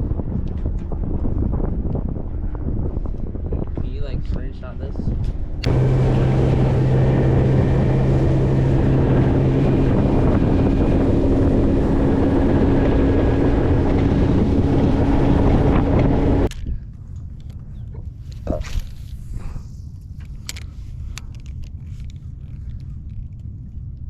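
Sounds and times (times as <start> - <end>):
wind buffeting microphone: 0.0 - 24.0
outboard motor running: 5.6 - 16.5.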